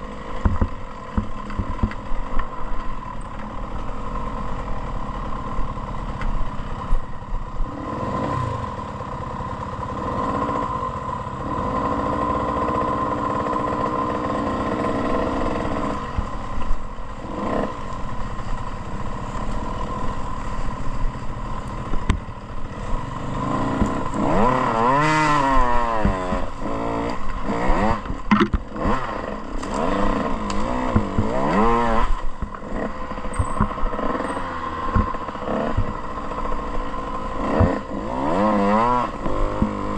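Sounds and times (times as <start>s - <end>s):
bike knocks and clatter: 0.3s - 3.6s, 27.5s - 29.0s, 29.6s - 36.0s, 37.4s - 38.1s
dirt bike engine revving: 2.6s - 39.9s.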